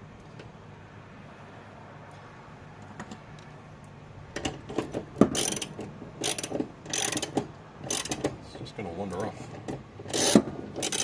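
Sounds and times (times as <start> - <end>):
socket ratchet clicking: 5.4 - 8.3, 10.1 - 11.0.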